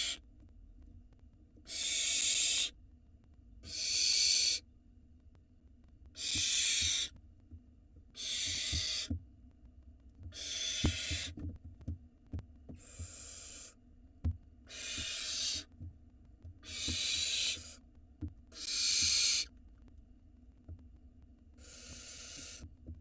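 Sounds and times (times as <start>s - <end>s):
owl nestlings hissing: 0.0s - 0.2s, 1.7s - 2.7s, 3.6s - 4.6s, 6.2s - 7.1s, 8.2s - 9.1s, 10.3s - 11.4s, 12.8s - 13.8s, 14.7s - 15.7s, 16.6s - 17.8s, 18.5s - 19.5s, 21.6s - 22.7s.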